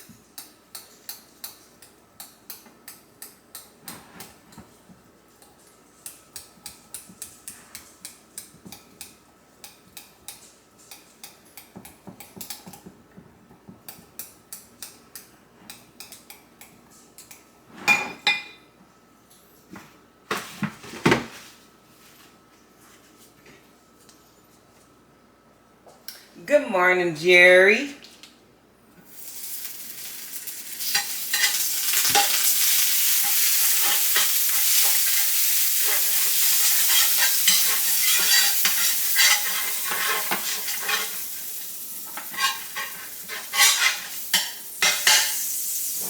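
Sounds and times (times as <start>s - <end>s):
kitchenware clicking and clinking: 17.8s - 18.6s, 30.8s - 41.3s, 42.1s - 45.4s.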